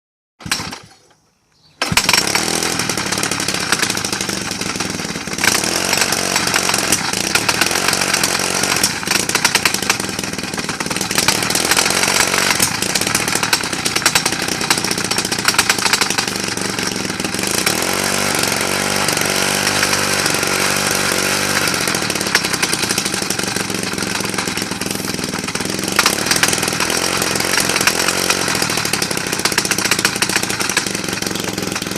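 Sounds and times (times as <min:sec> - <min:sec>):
petrol breaker engine running: 0:00.4 - 0:00.9, 0:01.8 - 0:31.9.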